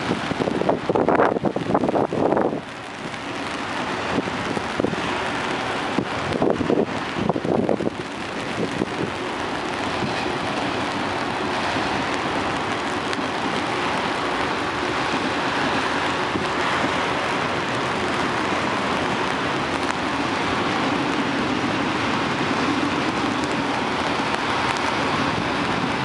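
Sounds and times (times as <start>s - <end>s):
wind bumps on microphone: 0.0s - 14.2s
freight train rolling past: 0.0s - 26.0s
heavy rain hissing: 0.0s - 26.0s.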